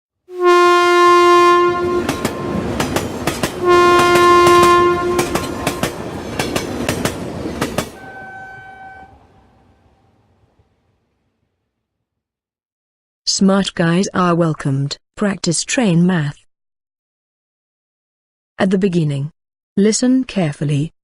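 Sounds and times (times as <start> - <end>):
higher horn note: 0.3 - 6.0, 8.0 - 10.2
train horn blasts: 0.3 - 6.1, 8.0 - 10.2
train wheels clickety-clack: 2.0 - 8.0.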